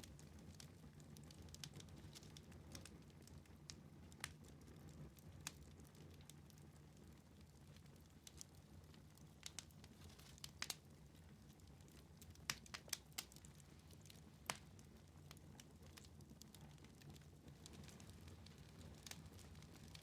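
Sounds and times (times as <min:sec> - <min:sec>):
wood fire crackling: 0:00.0 - 0:20.0
sharp pops of fire: 0:09.2 - 0:10.9, 0:11.9 - 0:20.0.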